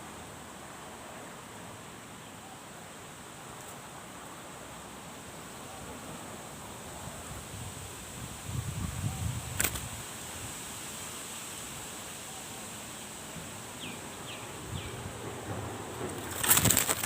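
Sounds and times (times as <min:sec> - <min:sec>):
insect-like hiss with high tone: 0:07.2 - 0:15.0
sharp click: 0:09.6 - 0:09.9.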